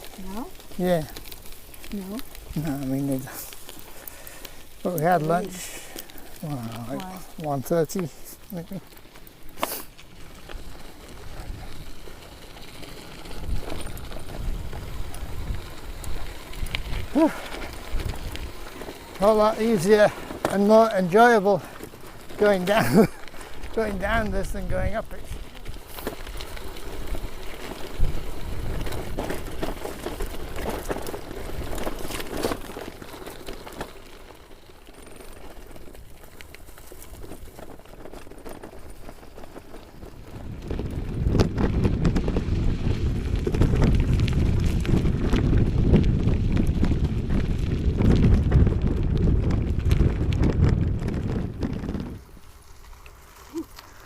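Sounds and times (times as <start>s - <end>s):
bike tyres rumbling on dirt: 0.0s - 54.0s
wind on microphone: 13.2s - 18.7s, 40.2s - 52.4s.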